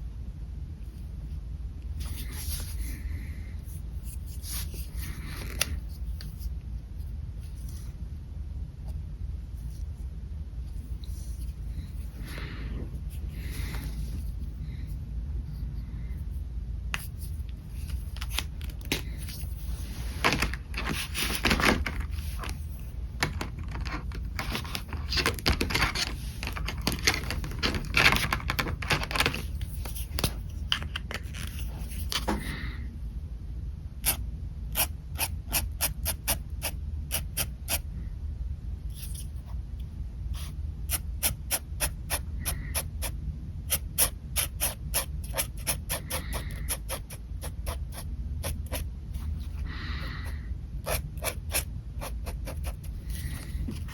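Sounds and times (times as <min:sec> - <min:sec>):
pen scratching on paper: 0:34.8 - 0:37.8, 0:40.3 - 0:49.6, 0:50.8 - 0:53.9.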